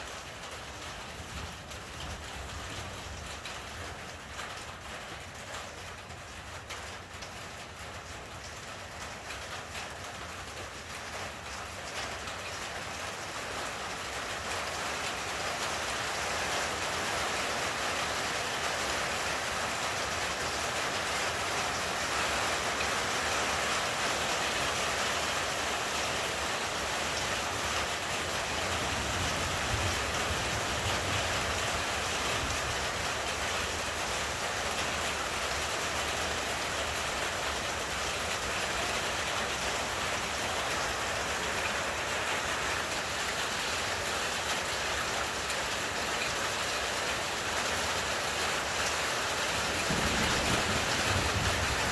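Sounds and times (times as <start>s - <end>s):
heavy rain: 0.0s - 51.9s
low thunder rumble: 49.6s - 51.9s.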